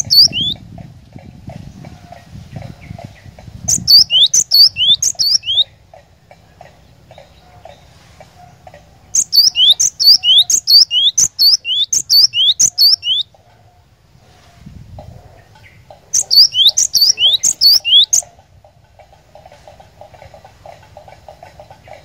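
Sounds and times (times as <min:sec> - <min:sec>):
bird whistling song: 0:00.0 - 0:00.6, 0:03.6 - 0:05.7, 0:09.2 - 0:13.3, 0:16.1 - 0:18.3
faint chattering: 0:00.0 - 0:00.6, 0:01.8 - 0:13.2, 0:15.4 - 0:22.0.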